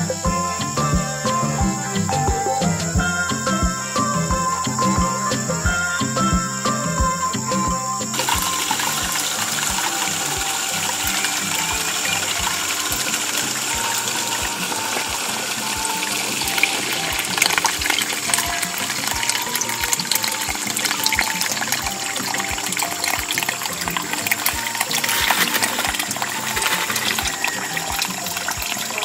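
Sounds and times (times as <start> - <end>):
background music with steady beat: 0.0 - 29.0
water gushing and splashing: 8.1 - 29.0.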